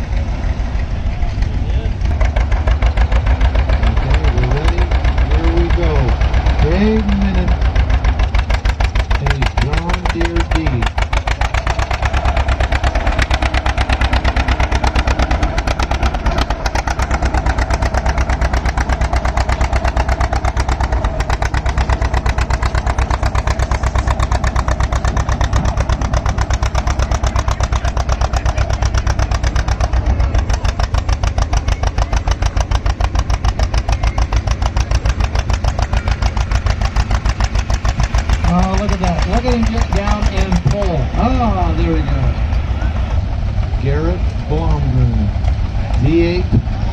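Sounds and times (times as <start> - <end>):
tractor engine working under load: 0.0 - 46.9.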